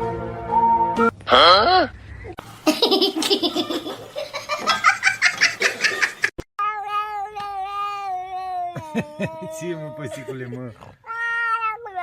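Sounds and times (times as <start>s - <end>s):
child laughing: 8.5s - 10.6s
cat meowing: 11.0s - 12.0s.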